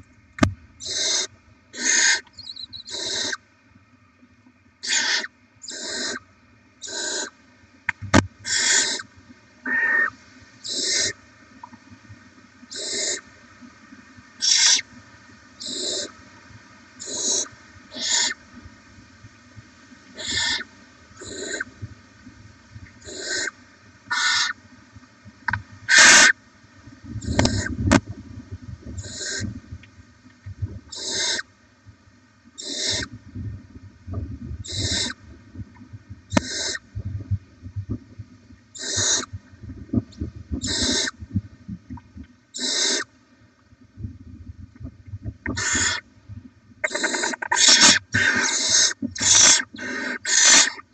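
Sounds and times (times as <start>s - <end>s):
owl chicks hissing: 0.8s - 3.4s, 4.8s - 6.2s, 6.8s - 7.3s, 8.4s - 9.1s, 9.7s - 11.2s, 12.7s - 13.2s, 14.4s - 14.9s, 15.6s - 16.2s, 17.0s - 18.4s, 20.2s - 21.7s, 23.0s - 24.6s, 25.9s - 26.4s, 27.2s - 27.8s, 29.0s - 29.5s, 30.9s - 31.4s, 32.6s - 33.1s, 34.6s - 35.2s, 36.3s - 36.8s, 38.8s - 39.3s, 40.6s - 41.2s, 42.6s - 43.1s, 45.6s - 46.0s, 46.8s - 50.8s.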